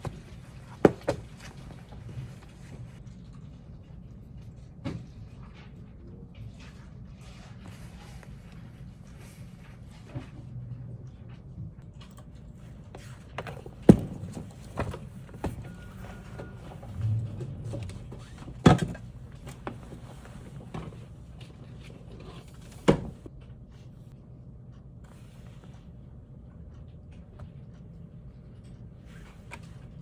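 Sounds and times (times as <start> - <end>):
objects thumping down: 0.0 - 2.9, 13.4 - 17.0, 18.0 - 21.1.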